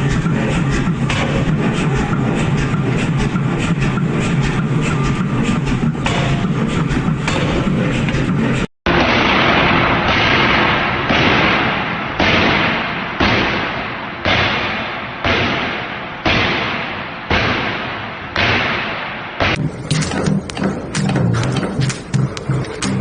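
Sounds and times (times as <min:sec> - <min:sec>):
machine cycling strokes: 0:00.0 - 0:08.7, 0:19.6 - 0:23.0.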